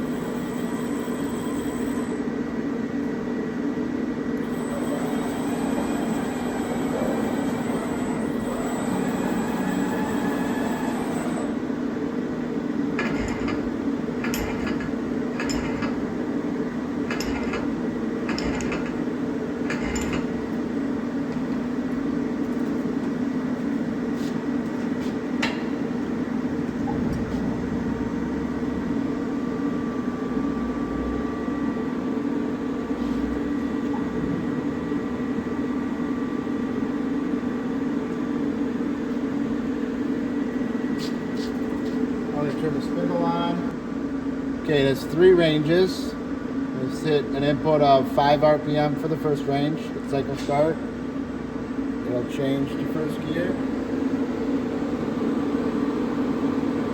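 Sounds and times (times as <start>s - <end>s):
machine hum: 4.2s - 24.1s, 24.7s - 47.6s.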